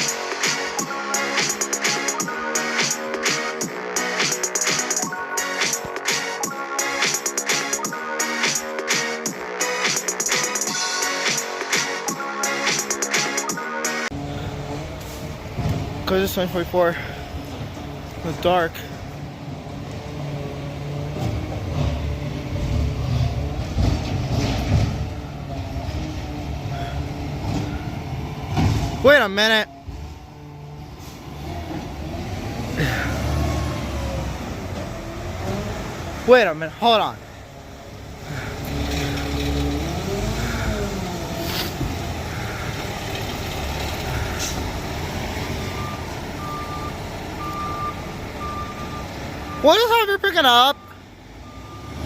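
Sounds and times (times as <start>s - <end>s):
garbage truck engine running: 0.0s - 52.0s
reversing alarm beeping: 45.4s - 52.0s.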